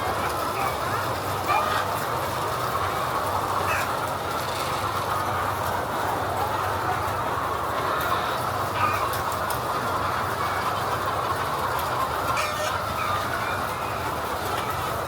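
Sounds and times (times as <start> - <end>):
hens calling: 0.0 - 15.0.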